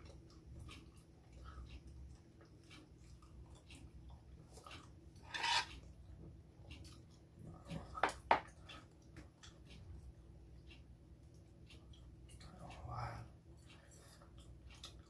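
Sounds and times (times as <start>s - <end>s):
utensils clinking on dishes: 5.2s - 5.7s.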